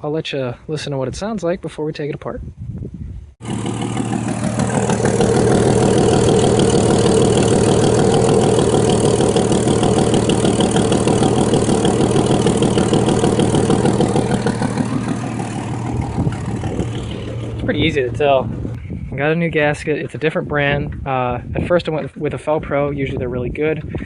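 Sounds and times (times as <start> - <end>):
engine running with exhaust leak: 3.4 - 18.8.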